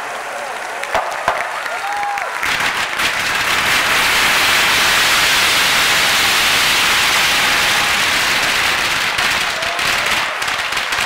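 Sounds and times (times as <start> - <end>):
fireworks hissing: 2.6 - 11.0.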